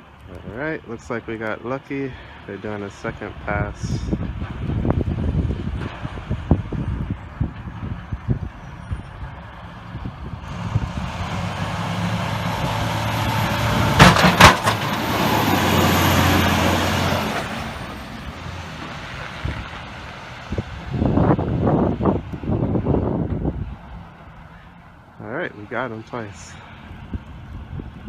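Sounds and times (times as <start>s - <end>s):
plow rushing through snow: 0.0s - 28.0s
truck engine passing: 0.0s - 28.0s
sharp bangs: 11.8s - 15.5s.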